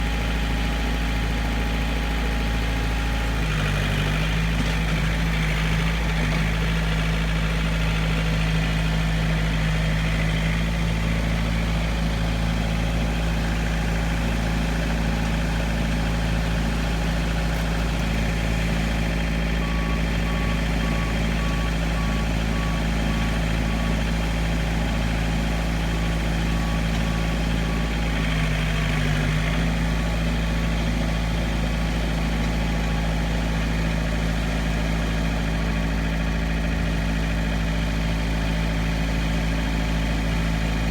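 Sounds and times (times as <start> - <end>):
diesel engine running: 0.0 - 40.9
reversing alarm beeps: 18.4 - 25.1.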